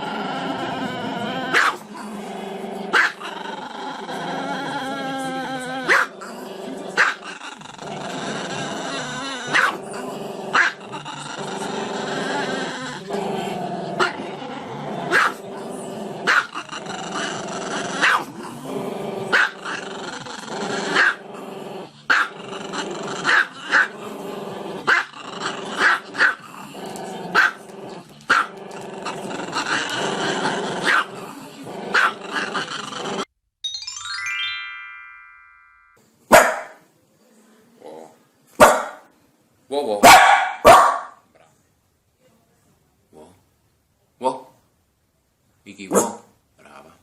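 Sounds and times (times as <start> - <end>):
dog growling: 0.0 - 33.3
dog barking: 1.5 - 1.8, 3.0 - 3.2, 5.9 - 6.1, 9.5 - 9.8, 15.1 - 15.4, 18.0 - 18.3, 22.1 - 22.3, 27.4 - 27.6, 30.8 - 31.1, 32.0 - 32.2, 36.3 - 36.8, 38.6 - 39.0, 40.0 - 41.2, 45.9 - 46.3.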